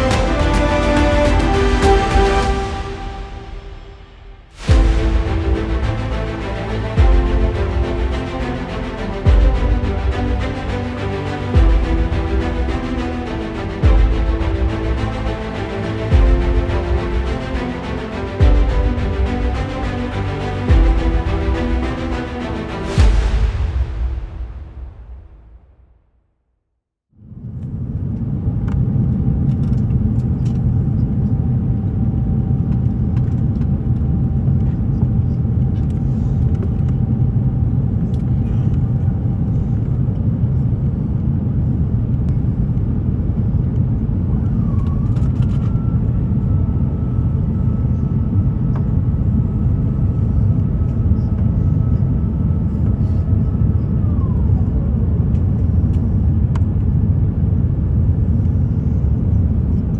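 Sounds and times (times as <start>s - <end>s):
jet engine and airflow rumble: 0.0s - 25.5s, 27.3s - 59.9s.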